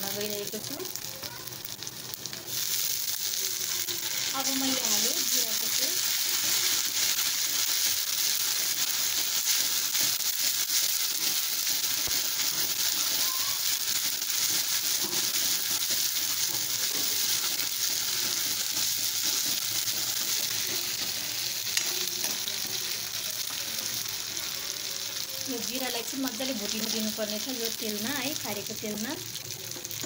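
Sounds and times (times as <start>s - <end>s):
food sizzling in hot oil: 0.0s - 30.0s
metal spoon stirring in wok: 1.8s - 24.2s.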